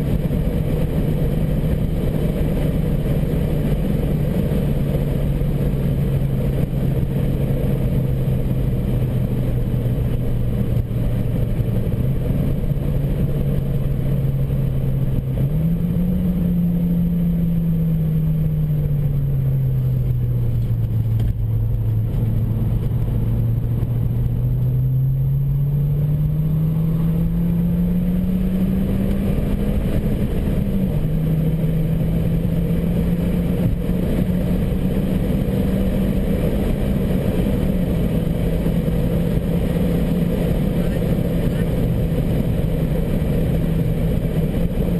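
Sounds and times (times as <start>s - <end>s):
turbocharged car engine: 0.0s - 44.9s.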